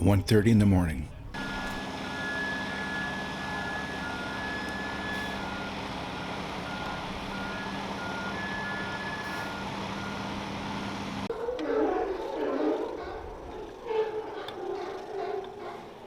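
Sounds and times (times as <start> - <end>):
reversing alarm beeping: 0.0 - 11.3
engine hum: 0.0 - 16.0.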